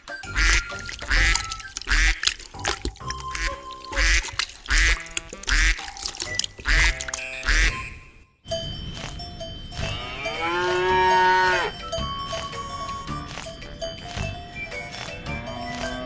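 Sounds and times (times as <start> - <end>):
music with thumping beat: 0.0 - 7.7, 9.0 - 16.0
duck quacking: 0.2 - 2.4, 3.3 - 8.0.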